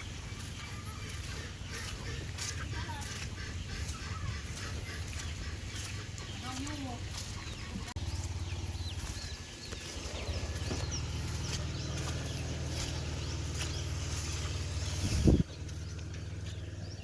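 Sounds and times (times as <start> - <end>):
bird chirps: 0.0 - 17.0
steady low rumble: 7.0 - 17.0.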